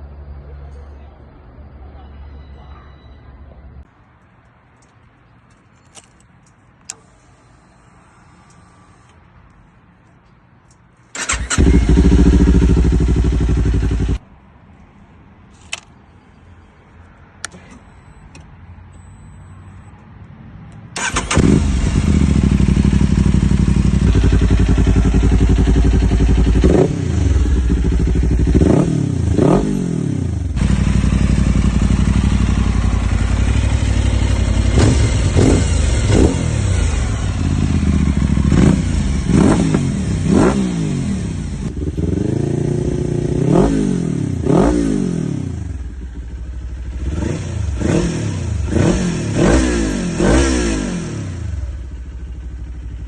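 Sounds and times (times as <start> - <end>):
motorcycle engine revving: 11.2 - 14.2, 21.0 - 53.0.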